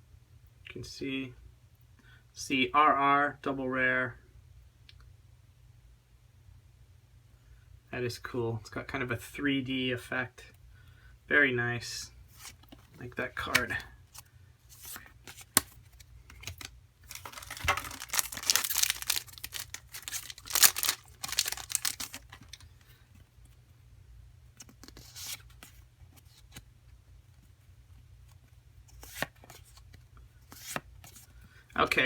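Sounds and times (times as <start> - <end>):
foil wrapper crinkling and tearing: 14.8 - 22.7.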